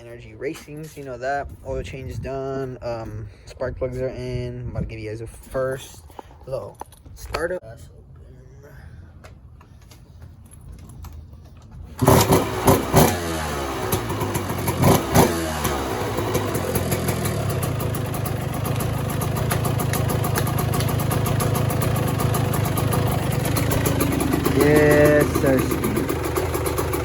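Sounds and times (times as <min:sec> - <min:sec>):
dirt bike engine revving and idling: 0:11.9 - 0:27.0.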